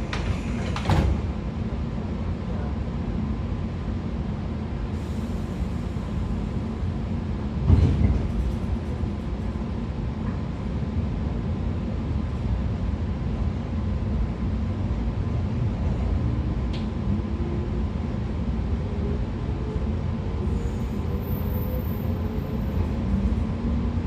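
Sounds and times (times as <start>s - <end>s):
train interior rumble: 0.0s - 24.0s.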